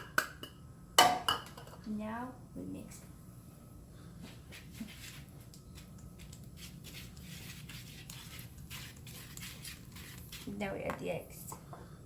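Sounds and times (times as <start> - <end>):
utensil scraping mixing bowl: 4.6 - 11.1.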